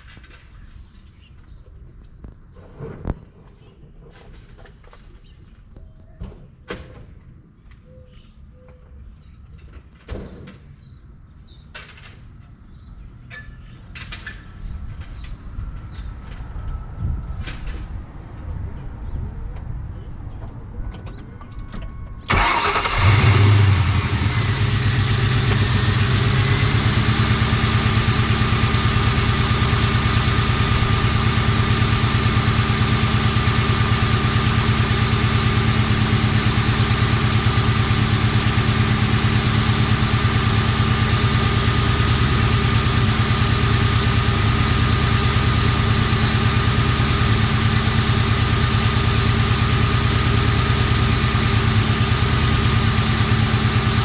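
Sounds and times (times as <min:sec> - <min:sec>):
car engine cranking and idling: 0:21.2 - 0:54.0.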